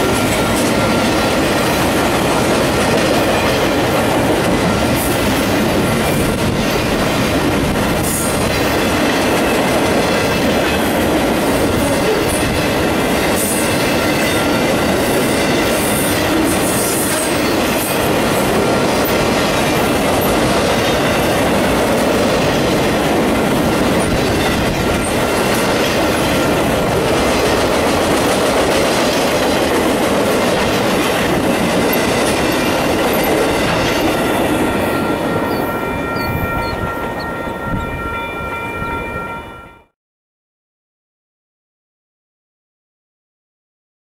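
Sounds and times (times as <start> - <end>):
train wheels rolling on rails: 0.0 - 39.3.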